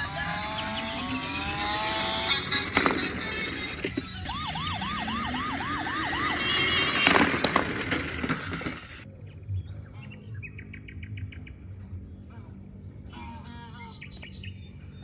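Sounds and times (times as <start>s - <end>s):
toy police siren yelping: 0.0s - 9.0s.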